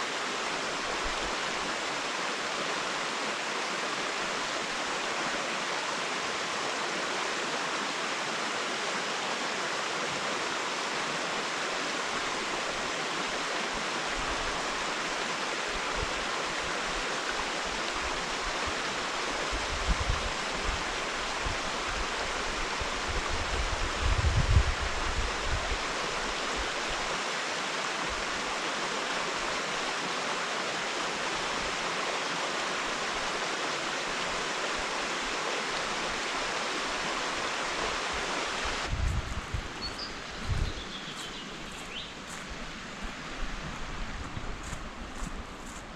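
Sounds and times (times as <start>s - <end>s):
running water rushing: 0.0s - 45.9s.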